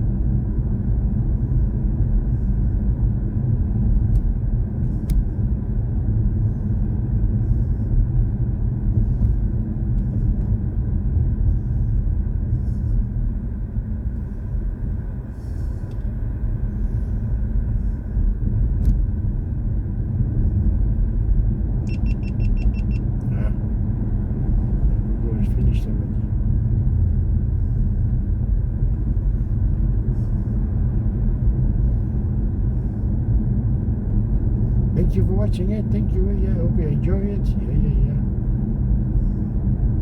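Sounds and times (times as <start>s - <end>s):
road and tyre rumble: 0.0s - 40.0s
short high beeps: 21.9s - 23.0s.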